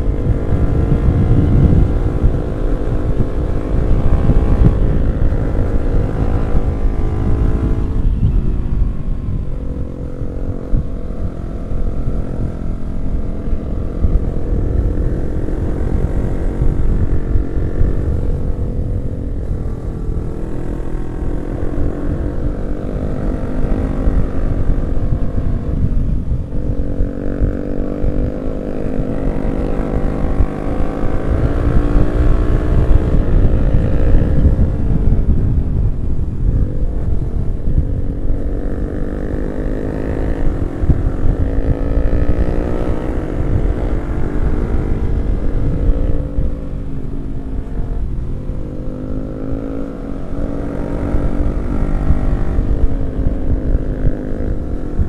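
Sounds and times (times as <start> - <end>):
motorcycle engine revving: 0.0 - 55.0
wind rumble: 0.0 - 55.0.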